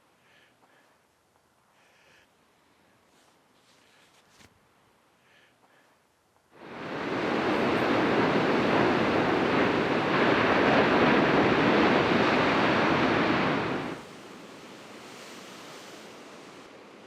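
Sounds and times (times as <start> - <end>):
soft wash of surf: 6.5 - 17.0
ocean surf crashing on rocks: 6.6 - 17.0.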